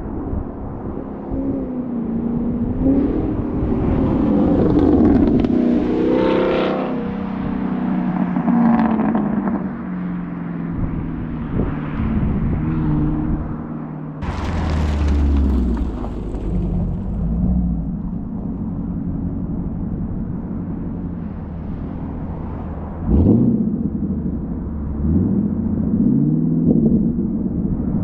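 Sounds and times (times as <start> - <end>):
car engine accelerating: 14.2 - 28.0.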